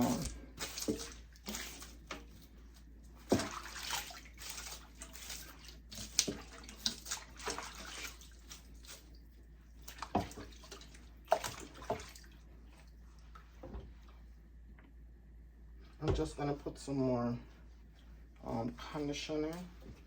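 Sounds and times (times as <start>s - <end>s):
water sloshing in a sink: 0.0s - 14.4s.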